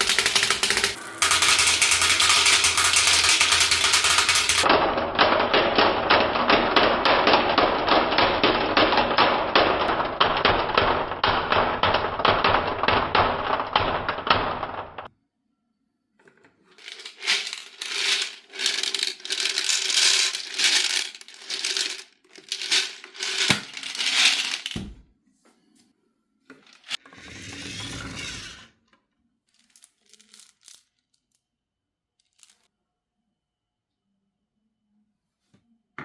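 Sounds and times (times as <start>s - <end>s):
marbles clacking down wooden run: 0.0s - 4.7s, 16.8s - 24.8s.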